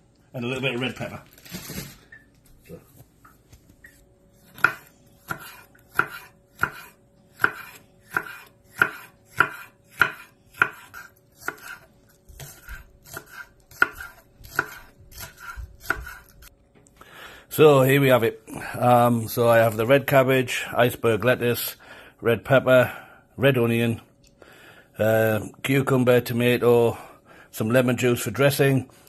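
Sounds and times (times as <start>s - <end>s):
knife chopping on cutting board: 4.5s - 16.4s.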